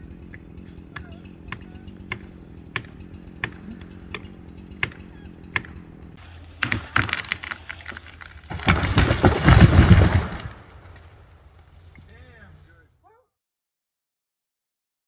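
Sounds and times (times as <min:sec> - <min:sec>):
wood snapping and cracking: 0:06.2 - 0:12.2
tree crashing down: 0:06.2 - 0:12.3.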